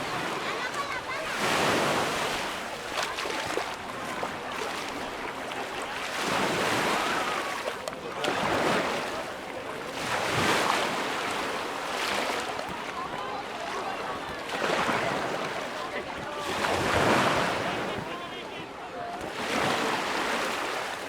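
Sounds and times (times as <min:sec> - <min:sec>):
small waves washing up beach: 0:00.0 - 0:21.0.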